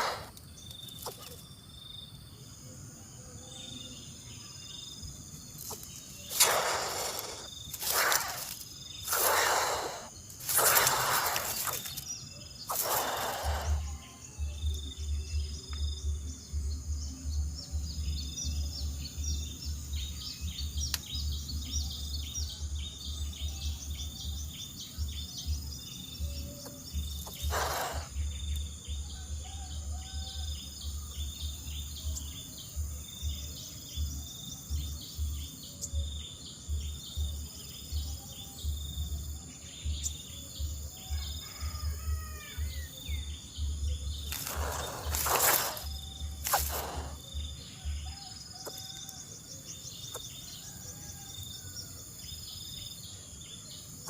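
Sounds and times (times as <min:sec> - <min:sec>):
high bird chirps: 0:00.0 - 0:01.6, 0:05.5 - 0:15.2, 0:25.0 - 0:28.7, 0:41.1 - 0:49.2
rustling: 0:44.2 - 0:47.2.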